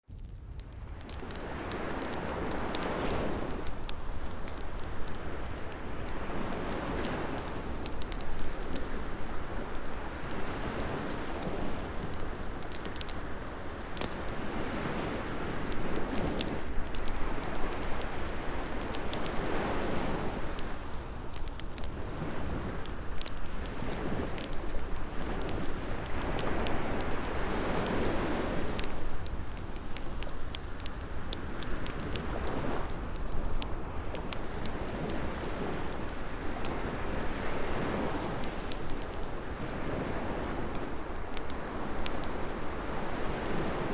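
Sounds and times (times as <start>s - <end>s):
wood fire crackling: 0.1s - 43.9s
ocean waves washing: 1.2s - 43.9s.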